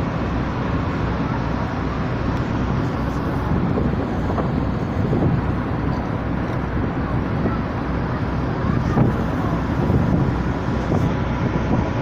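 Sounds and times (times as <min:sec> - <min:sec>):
boat engine rumble: 0:00.0 - 0:12.0
wind on microphone: 0:02.6 - 0:12.0.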